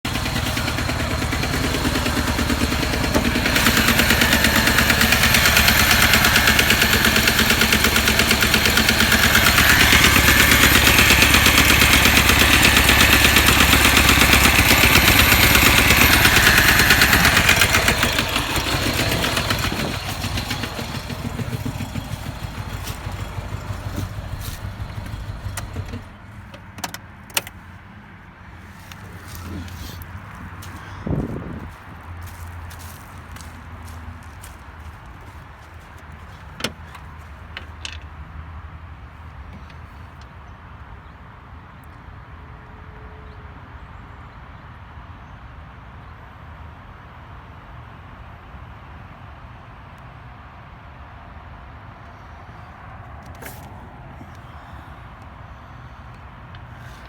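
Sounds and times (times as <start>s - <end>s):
car engine with rapid knock: 0.1s - 27.6s, 28.8s - 38.1s.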